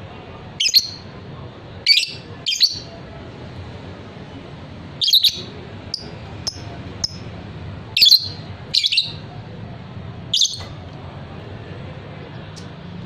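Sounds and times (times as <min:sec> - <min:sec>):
lovebird chirping: 0:00.6 - 0:01.0, 0:01.9 - 0:02.9, 0:05.0 - 0:07.2, 0:08.0 - 0:09.2, 0:10.3 - 0:10.6.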